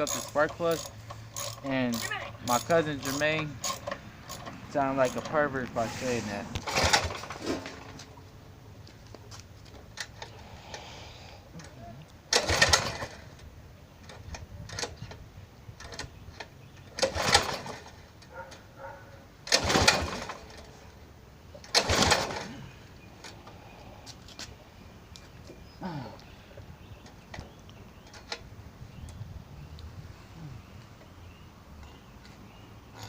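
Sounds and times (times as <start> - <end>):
small engine cranking on recoil starter: 0.0 - 5.5, 6.6 - 7.5, 12.3 - 13.3, 17.0 - 18.0, 19.5 - 20.7, 21.7 - 22.6.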